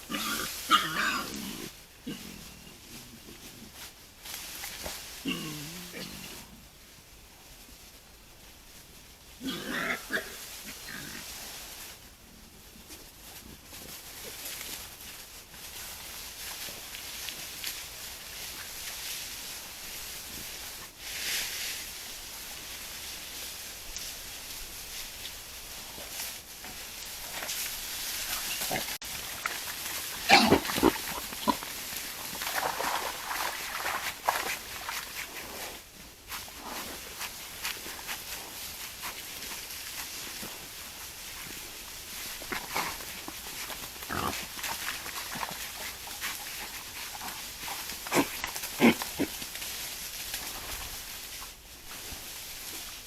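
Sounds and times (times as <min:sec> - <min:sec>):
wild boar grunting: 0:00.0 - 0:03.7, 0:05.2 - 0:06.5, 0:09.4 - 0:11.3, 0:28.2 - 0:35.1, 0:42.4 - 0:49.6.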